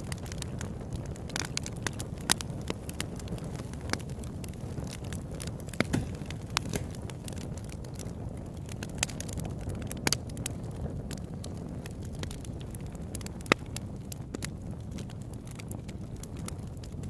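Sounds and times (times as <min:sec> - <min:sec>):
low rush of flame: 0:00.0 - 0:17.0
wood crackling and popping: 0:00.0 - 0:17.0.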